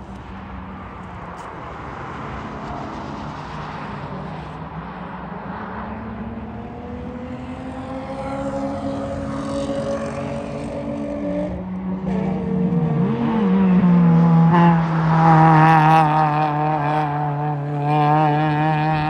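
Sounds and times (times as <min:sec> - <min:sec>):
sports car engine: 0:00.0 - 0:19.0
tyre and road noise: 0:00.0 - 0:19.0.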